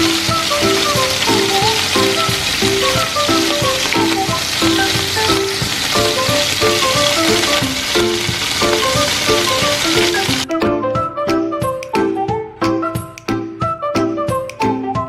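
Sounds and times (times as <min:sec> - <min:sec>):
chicken sizzling in oil: 0:00.0 - 0:10.5
background music: 0:00.0 - 0:15.0.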